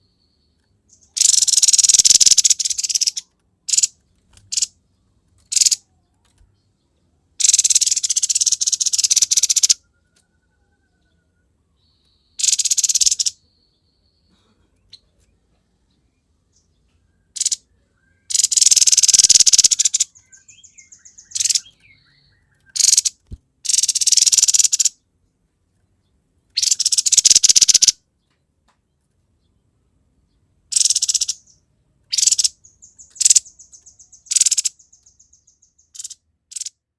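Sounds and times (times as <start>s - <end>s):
harsh buzzy rattling bird calls: 0.9s - 4.8s, 5.4s - 5.9s, 7.4s - 9.8s, 12.4s - 13.4s, 17.3s - 17.7s, 18.3s - 25.0s, 26.5s - 28.0s, 30.7s - 36.9s.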